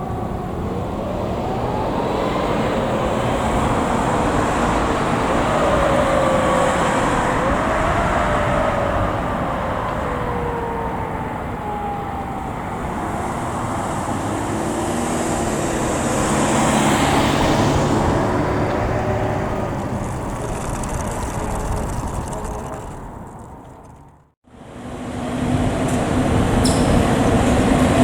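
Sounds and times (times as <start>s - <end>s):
fire truck siren winding down: 0.0s - 20.0s
road noise: 0.0s - 28.0s
truck engine passing: 0.0s - 28.0s.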